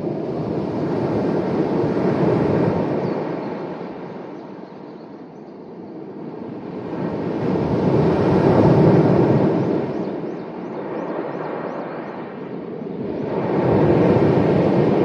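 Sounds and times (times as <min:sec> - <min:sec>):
sea waves washing on shore: 0:00.0 - 0:04.3, 0:06.5 - 0:10.2, 0:13.0 - 0:15.0.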